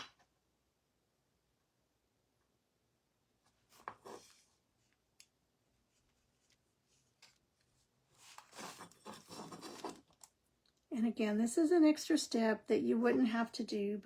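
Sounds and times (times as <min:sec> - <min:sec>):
faint painting rustles: 0:03.5 - 0:05.1, 0:05.7 - 0:10.4.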